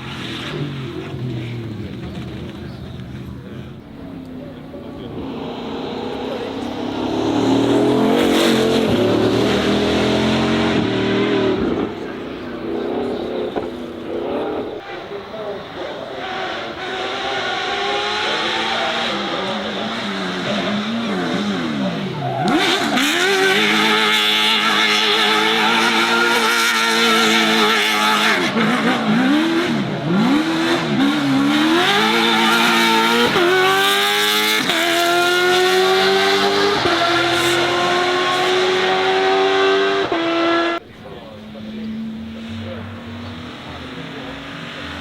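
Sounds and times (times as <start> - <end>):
racing car engine revving: 0.0 - 45.0
tyre squeal: 21.9 - 28.5.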